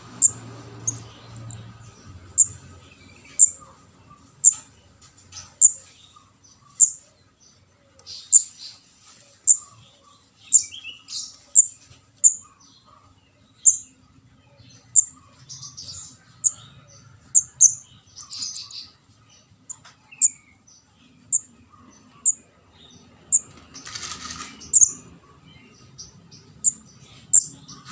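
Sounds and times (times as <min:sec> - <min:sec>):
bird high chirps: 0:00.0 - 0:27.9.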